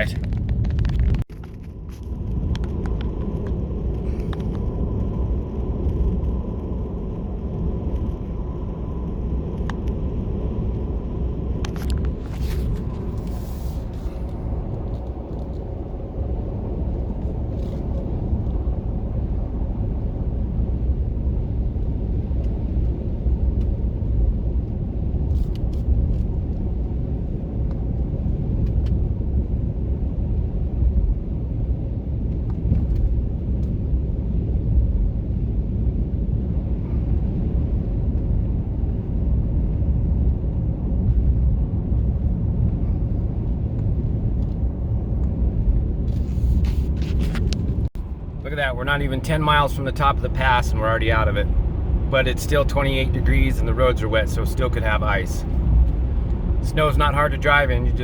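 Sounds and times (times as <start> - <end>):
road rumble: 0.0 - 58.0
truck engine drone: 35.9 - 58.0.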